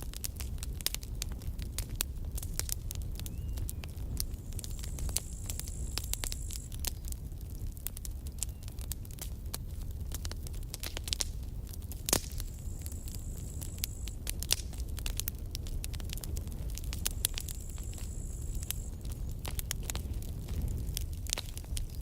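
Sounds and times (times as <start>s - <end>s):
campfire crackling: 0.0s - 22.0s
low steady rumble: 10.4s - 22.0s.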